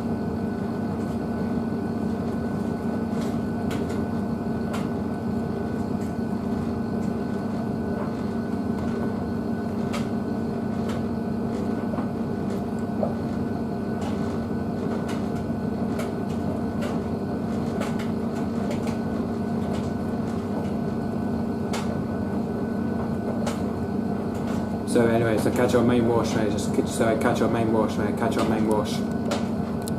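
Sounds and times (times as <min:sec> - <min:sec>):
washing machine humming: 0:00.0 - 0:29.9.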